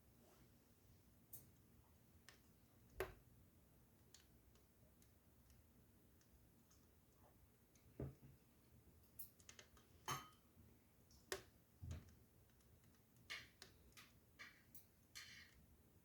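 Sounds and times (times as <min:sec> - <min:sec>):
wood fire crackling: 0:10.6 - 0:16.0.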